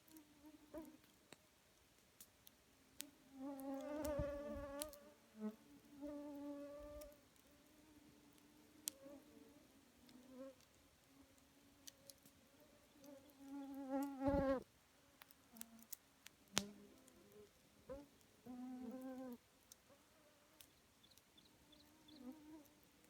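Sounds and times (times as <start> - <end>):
campfire crackling: 0.0 - 5.0, 5.6 - 23.0
flying insect buzzing: 3.4 - 5.0, 13.5 - 14.6.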